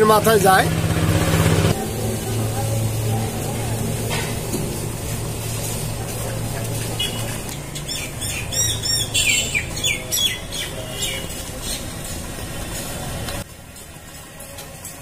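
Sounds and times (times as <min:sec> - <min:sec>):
small birds chirping: 0:06.7 - 0:12.0.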